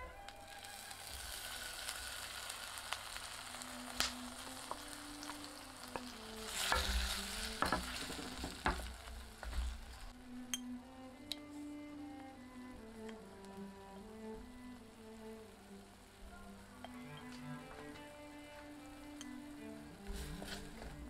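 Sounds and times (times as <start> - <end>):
tomato sizzling in oil: 0.1 - 21.0
wooden spatula knocking pot: 6.0 - 9.9.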